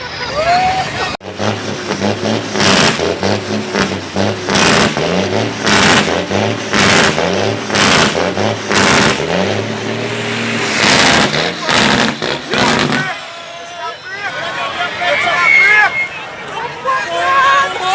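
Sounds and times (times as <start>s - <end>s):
truck engine revving: 0.8s - 13.8s.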